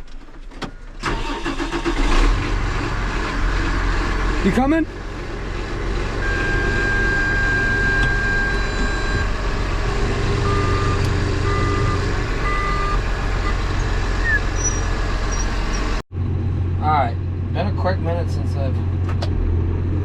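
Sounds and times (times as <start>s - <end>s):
tractor engine running: 0.0s - 19.6s
electronic warning tone: 6.2s - 9.3s, 10.4s - 14.8s
short beeps: 6.2s - 9.3s, 10.4s - 13.6s.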